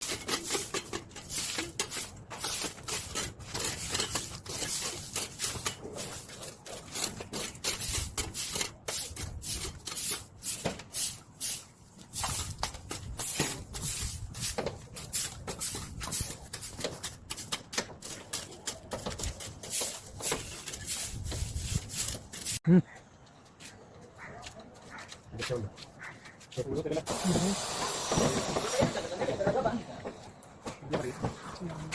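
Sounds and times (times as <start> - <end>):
tool scraping copper tubing: 0.0 - 11.6.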